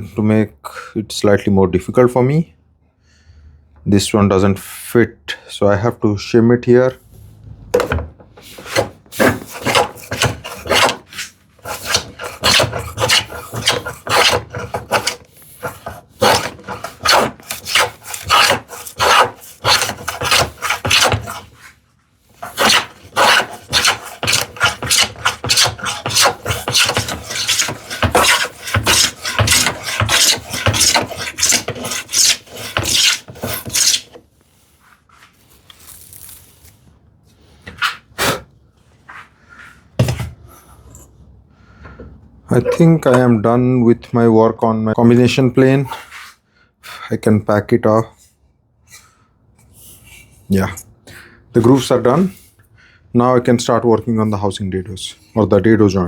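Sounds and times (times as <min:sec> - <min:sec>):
plane shaving strokes through wood: 0:08.4 - 0:21.8, 0:22.4 - 0:34.2.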